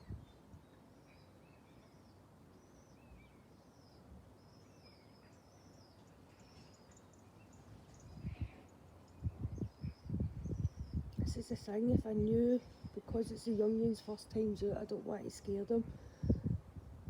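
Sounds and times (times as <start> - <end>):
songbirds chirping and whistling: 0.0 - 11.8
outdoor background hiss: 0.0 - 17.0.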